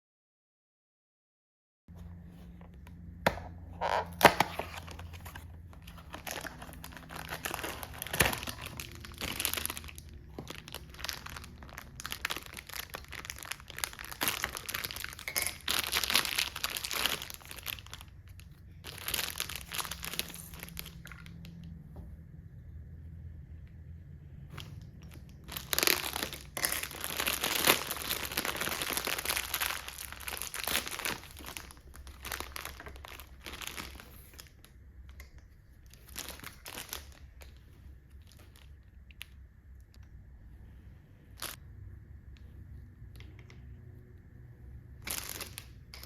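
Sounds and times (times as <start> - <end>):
crinkling and rustling: 1.9 - 22.2, 24.4 - 41.6, 45.0 - 46.0
faint low hum: 1.9 - 46.0.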